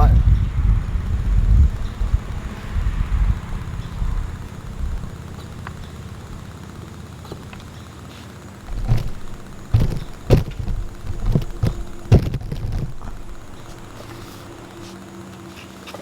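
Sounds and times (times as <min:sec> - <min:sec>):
faint mechanical hum: 0:00.0 - 0:16.0
dull thumps and clunks: 0:08.7 - 0:14.6.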